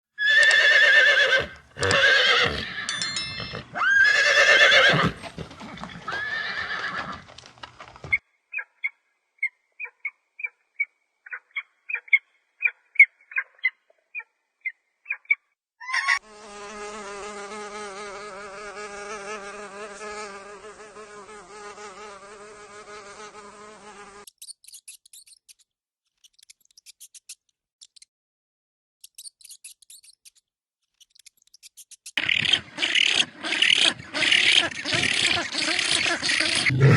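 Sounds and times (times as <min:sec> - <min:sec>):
loud animal calls: 0:32.2 - 0:36.9.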